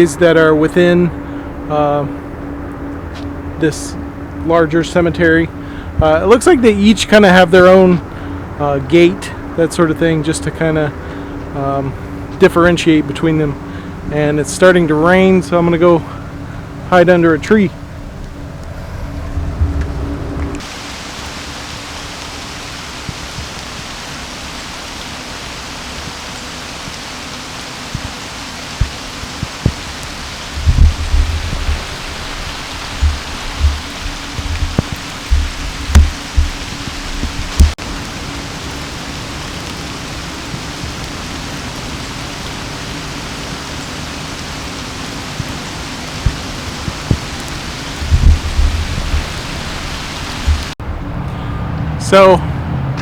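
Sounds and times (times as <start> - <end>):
steady rain falling: 0.0 - 50.8
soft taps: 32.9 - 37.8, 46.2 - 49.4.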